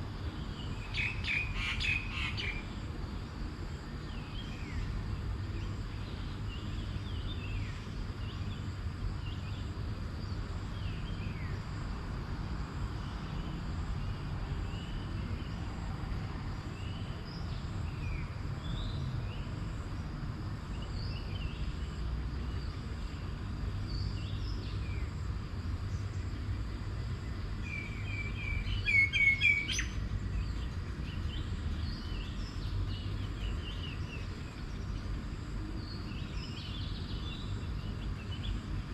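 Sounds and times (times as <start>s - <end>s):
birds chirping: 0.3s - 2.7s, 27.6s - 38.8s.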